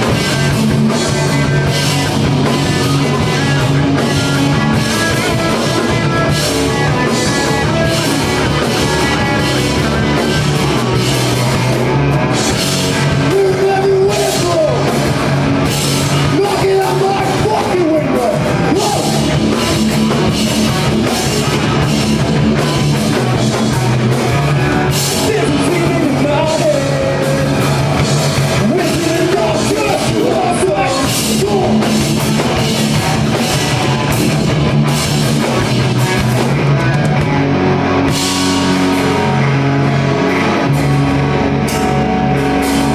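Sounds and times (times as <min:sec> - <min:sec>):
live rock band playing: 0:00.0 - 0:42.9
person singing: 0:13.2 - 0:15.0, 0:16.2 - 0:19.4, 0:23.5 - 0:27.8.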